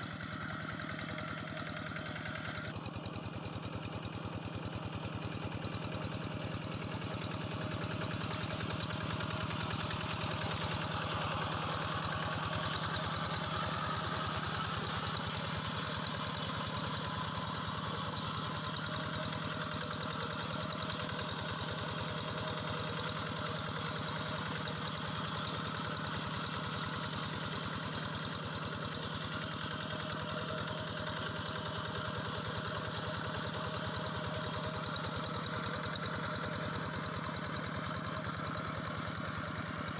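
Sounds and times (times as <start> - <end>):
hand tractor engine running: 5.9 - 39.9.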